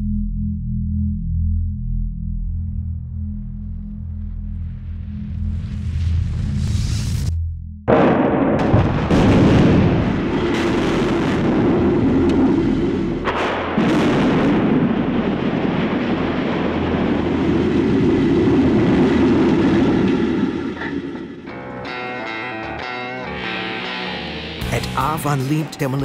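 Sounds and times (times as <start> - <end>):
building collapsing rumble: 2.5 - 7.3, 7.9 - 21.6
sharp explosive burst: 7.9 - 21.4
explosive blast: 7.9 - 21.5.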